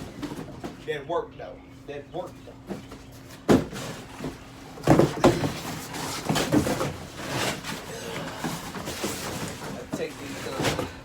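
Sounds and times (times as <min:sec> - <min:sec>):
objects knocking and clattering: 0:02.7 - 0:11.0.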